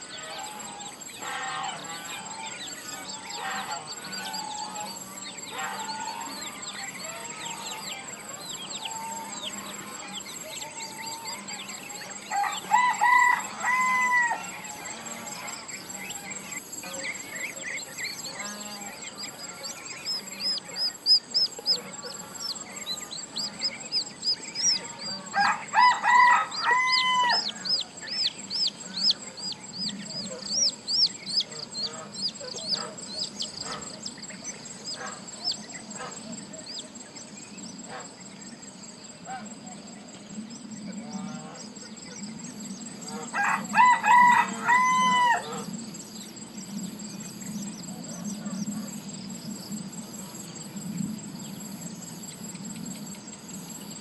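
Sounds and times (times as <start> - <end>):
high chirps of small birds: 0.0 - 54.0
rooster crowing: 8.7 - 16.4, 18.3 - 27.8, 43.2 - 45.7.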